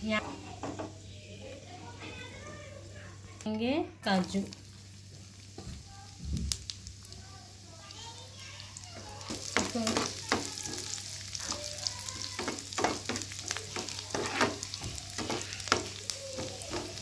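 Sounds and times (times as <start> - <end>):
cashews sizzling in ghee: 0.0 - 17.0
spatula scraping a pan: 9.3 - 17.0.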